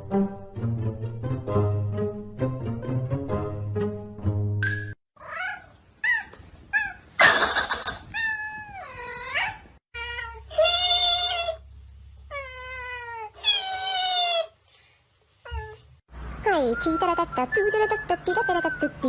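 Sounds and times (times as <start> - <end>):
cat meowing and yowling: 8.0 - 11.6.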